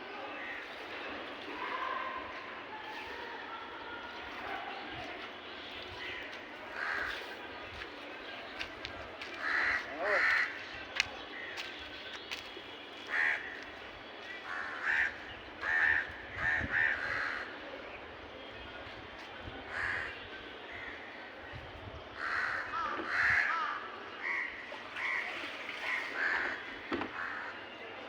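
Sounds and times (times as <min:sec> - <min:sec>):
crows cawing: 0:06.7 - 0:07.2, 0:09.4 - 0:10.7, 0:13.1 - 0:13.6, 0:14.4 - 0:17.5, 0:19.7 - 0:20.1, 0:22.2 - 0:25.2, 0:25.9 - 0:27.5.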